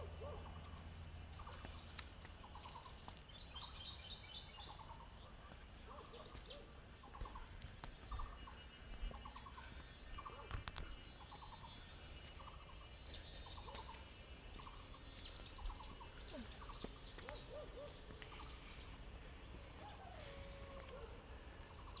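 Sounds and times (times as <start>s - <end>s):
high-pitched insect drone: 7.1s - 22.0s.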